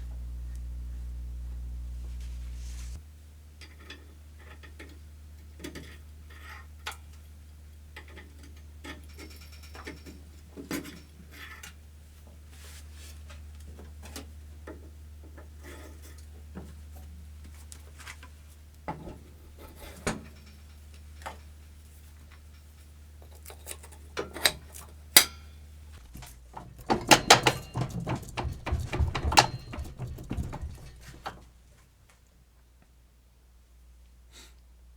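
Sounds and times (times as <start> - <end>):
steady low hum: 0.0 - 3.0, 26.0 - 31.5
tools clicking and knocking: 26.1 - 31.4
metal parts clattering and clinking: 26.2 - 31.4.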